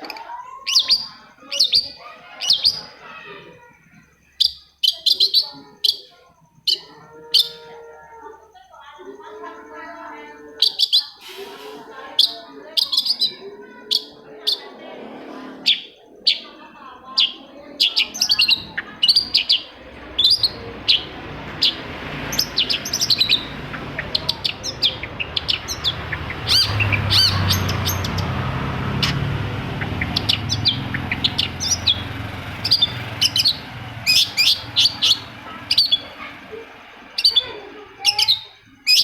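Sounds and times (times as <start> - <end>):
shrike sharp chirping calls: 9.2 - 14.7, 15.6 - 39.0
low rumble: 18.6 - 37.0.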